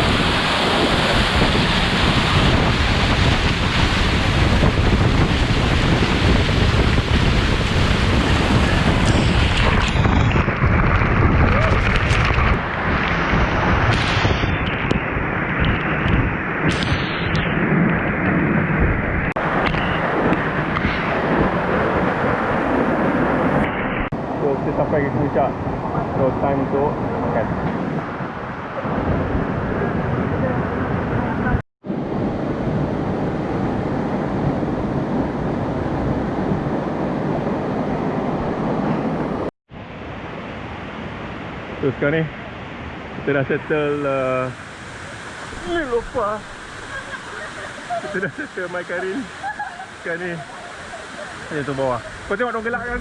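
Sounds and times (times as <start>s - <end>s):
waterfall rushing: 43.3s - 53.0s.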